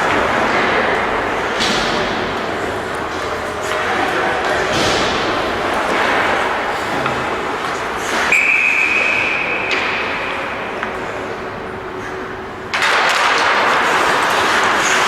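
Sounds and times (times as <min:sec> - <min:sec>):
referee's whistle: 0:08.3 - 0:09.6.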